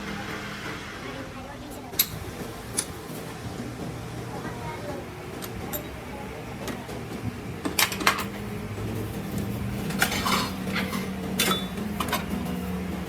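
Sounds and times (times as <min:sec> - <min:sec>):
metal tools clanking: 0:07.6 - 0:08.5, 0:09.3 - 0:12.6.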